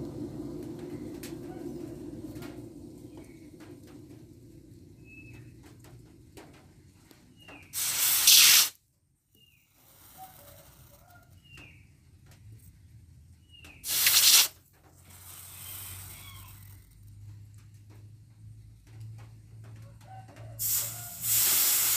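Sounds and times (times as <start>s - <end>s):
soft long hiss: 0.0s - 8.8s, 9.5s - 11.2s, 13.8s - 18.0s, 20.5s - 21.9s
loud hissing rushes: 7.6s - 8.8s, 13.8s - 16.8s, 20.6s - 21.9s.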